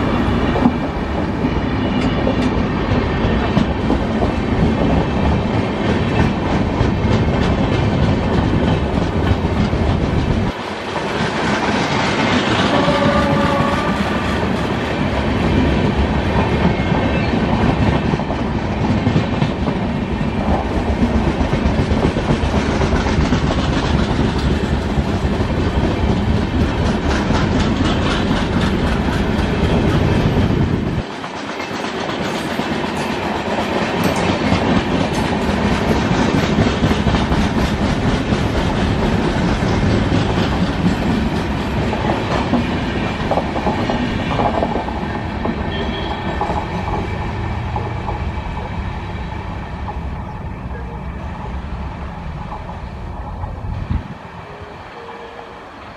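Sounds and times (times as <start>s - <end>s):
train rumble: 0.0s - 55.9s
train wheels clattering over joints: 0.6s - 48.7s.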